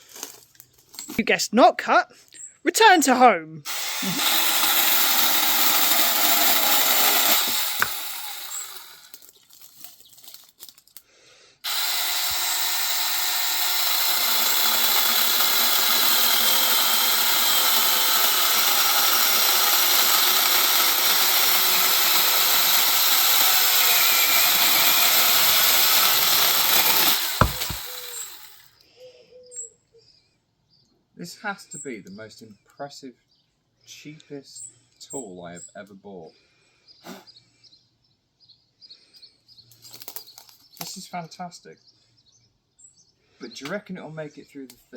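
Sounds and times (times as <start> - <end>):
chainsaw cutting tree trunk: 3.7 - 9.6, 11.6 - 28.6.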